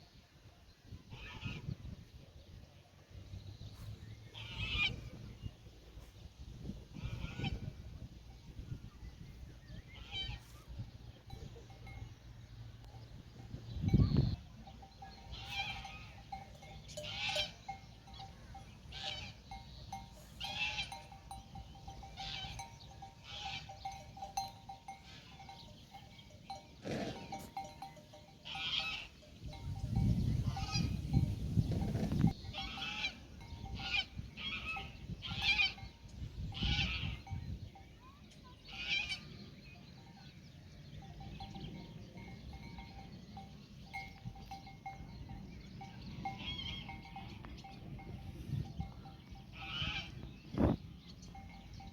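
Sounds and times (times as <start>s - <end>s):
livestock bells clanking: 11.1s - 38.6s, 39.9s - 51.9s.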